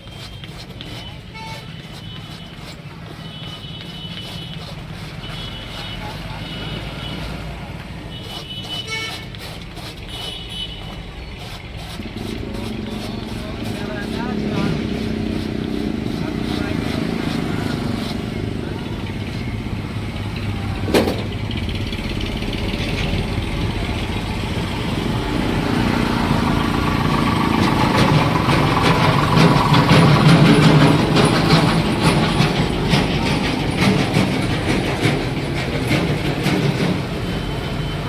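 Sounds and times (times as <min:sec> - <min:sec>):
vehicle engine running: 0:11.8 - 0:38.0
rattling: 0:12.0 - 0:23.8, 0:24.9 - 0:37.2
sharp knock: 0:20.8 - 0:21.6.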